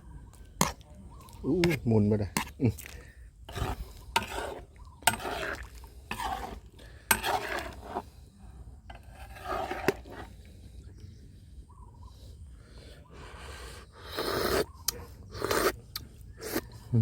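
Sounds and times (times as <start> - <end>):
utensil scraping a pot: 0.6 - 8.2, 8.8 - 10.5, 13.2 - 15.8.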